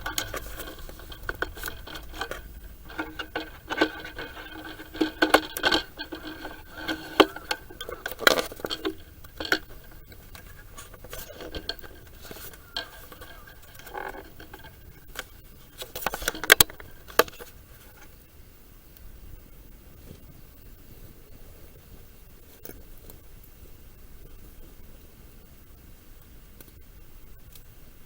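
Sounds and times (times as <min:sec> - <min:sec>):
hard objects knocking and clinking: 0:00.0 - 0:14.9, 0:15.9 - 0:16.9.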